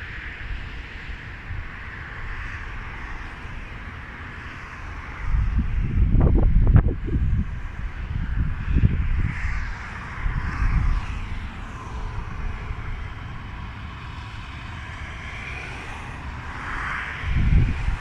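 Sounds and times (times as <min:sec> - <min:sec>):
wind gusts thumping microphone: 0:00.0 - 0:18.0
wind rushing: 0:04.8 - 0:18.0.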